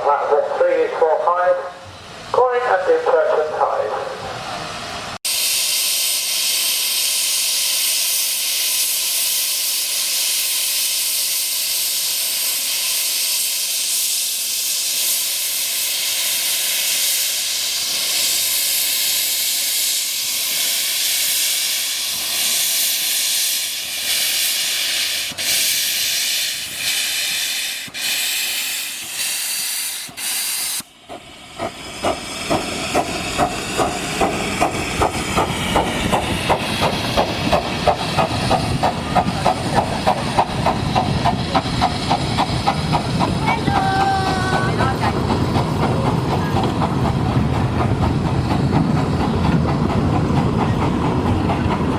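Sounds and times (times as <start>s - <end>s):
steam locomotive hissing: 0.0s - 51.9s
rhythmic locomotive beat: 31.1s - 51.9s.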